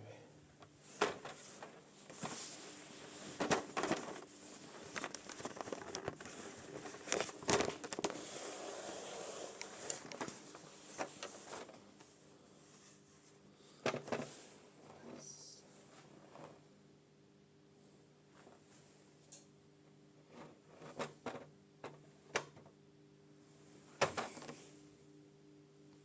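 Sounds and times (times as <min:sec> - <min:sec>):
handling rustling and scraping: 0:00.7 - 0:16.7, 0:23.6 - 0:24.9.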